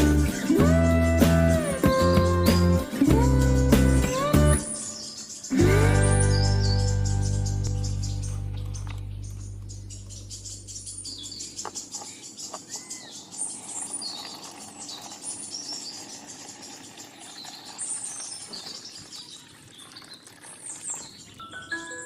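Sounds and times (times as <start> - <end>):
background music: 0.0 - 9.5, 21.5 - 22.0
small birds chirping: 0.0 - 22.0.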